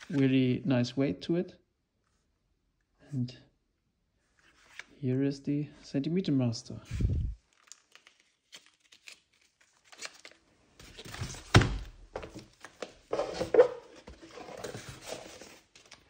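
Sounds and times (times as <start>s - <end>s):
cardboard packaging rustling: 6.9s - 16.0s.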